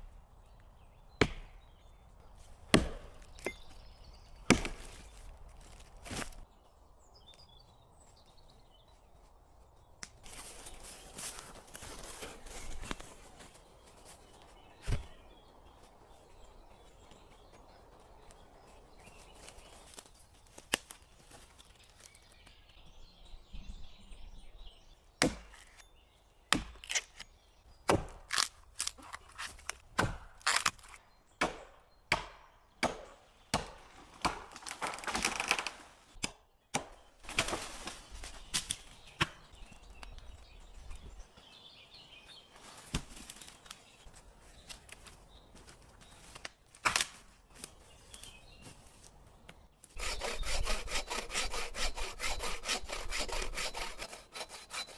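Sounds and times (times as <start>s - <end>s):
wood being chopped: 1.2s - 1.6s, 2.6s - 3.8s, 4.4s - 6.4s, 25.2s - 25.8s, 26.5s - 27.2s, 27.8s - 37.8s, 38.6s - 39.5s, 46.8s - 47.2s.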